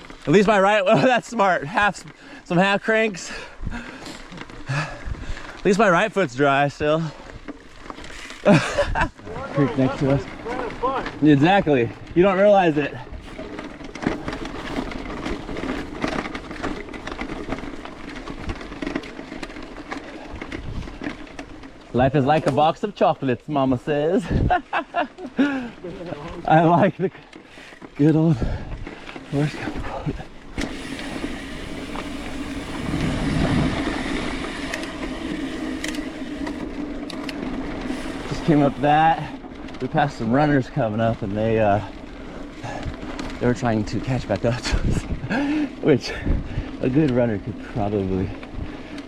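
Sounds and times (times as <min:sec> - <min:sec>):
bike clicks and rattles: 0:00.0 - 0:49.0
tyres crunching on gravel: 0:00.0 - 0:49.0
wind on microphone: 0:32.6 - 0:34.1.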